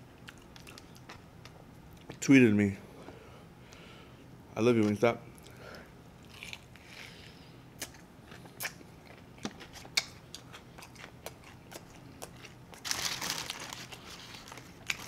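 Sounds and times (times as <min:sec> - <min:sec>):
chewing and biting chicken: 0:07.8 - 0:12.9
paper rustling: 0:12.8 - 0:15.0.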